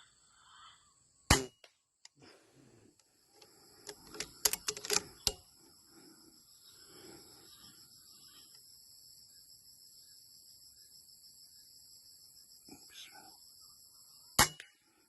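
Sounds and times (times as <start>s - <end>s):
air rifle shot: 1.3s - 1.6s
insects buzzing: 2.2s - 15.0s
sharp clicks: 3.4s - 5.4s.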